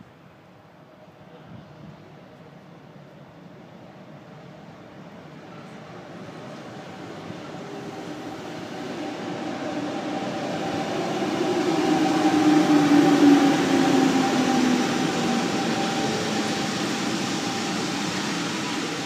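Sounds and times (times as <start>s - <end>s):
train humming tone: 3.4s - 19.0s
wheels rumbling on rails: 5.6s - 19.0s.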